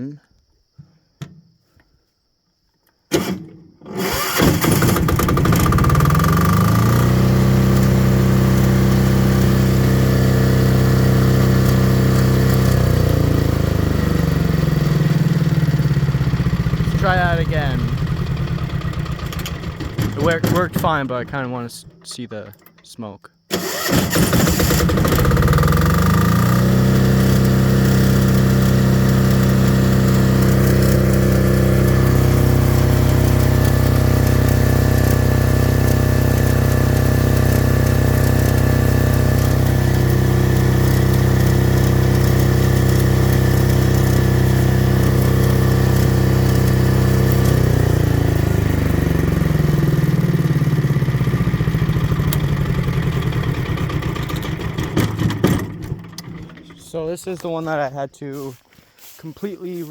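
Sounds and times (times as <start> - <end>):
diesel generator engine running: 3.9 - 22.8, 23.5 - 59.2.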